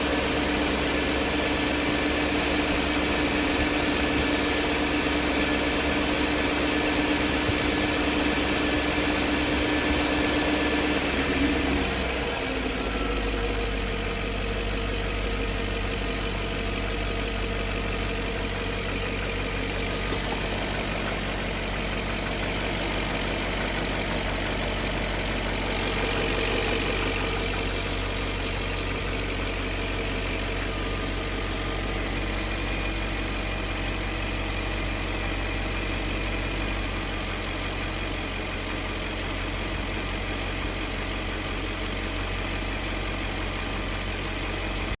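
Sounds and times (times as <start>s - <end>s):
car engine idling: 0.0s - 45.0s
engine knock: 0.0s - 45.0s.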